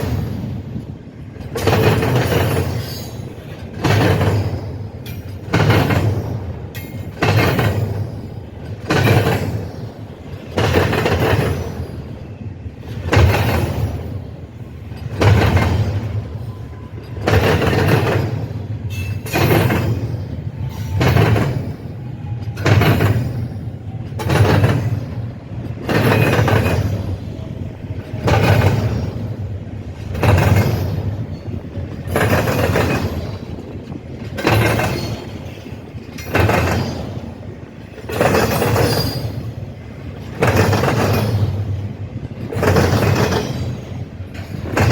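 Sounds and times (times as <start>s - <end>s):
passing train rumble: 0.0s - 44.9s
train wheels banging on crossing: 0.0s - 44.9s.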